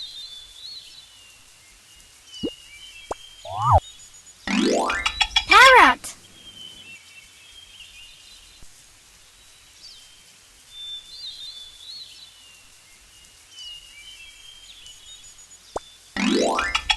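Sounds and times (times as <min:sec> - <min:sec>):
faint outdoor background: 0:00.0 - 0:16.9
bird chirps: 0:02.4 - 0:03.8.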